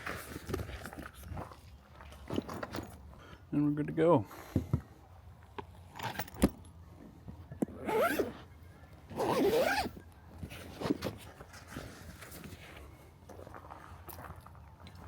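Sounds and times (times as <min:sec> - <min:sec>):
bag zipper pulled: 0:07.8 - 0:08.4, 0:09.1 - 0:10.0.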